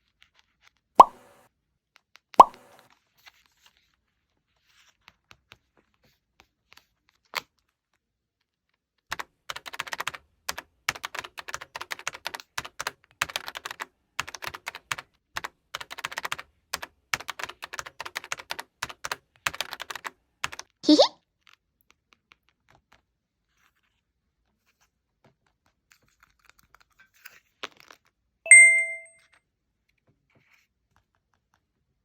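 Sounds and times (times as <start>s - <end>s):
sharp click: 2.4s - 2.8s.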